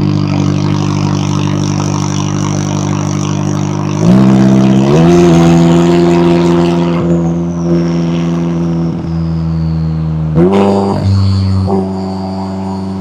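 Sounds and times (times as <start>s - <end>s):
faint high whine: 0.0s - 13.0s
sports car engine revving: 0.0s - 13.0s.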